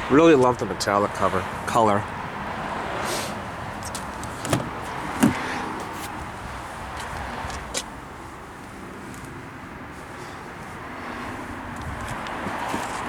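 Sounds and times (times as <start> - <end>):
car door knocks and shuts: 4.0 - 6.0.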